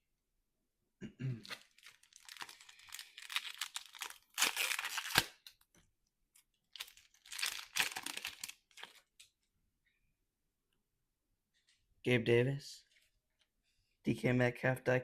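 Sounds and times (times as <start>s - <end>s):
foil wrapper tearing and crinkling: 1.4s - 5.5s, 6.7s - 9.2s.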